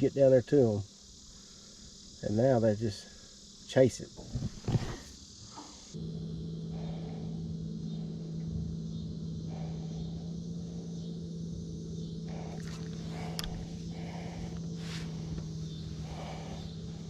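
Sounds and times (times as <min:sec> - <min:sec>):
small electric motor humming: 0:04.2 - 0:17.0.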